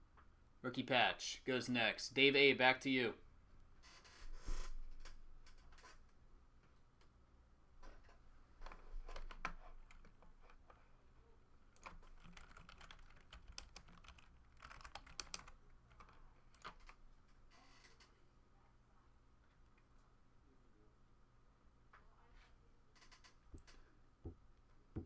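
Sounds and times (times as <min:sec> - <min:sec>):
faint typing on computer keyboard: 0:07.8 - 0:10.9, 0:11.6 - 0:18.2, 0:22.9 - 0:23.9.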